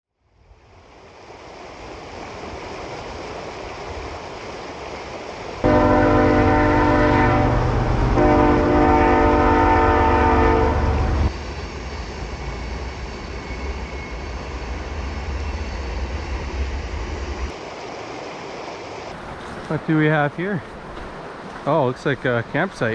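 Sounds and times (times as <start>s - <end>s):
train horn blasts: 5.6s - 11.3s.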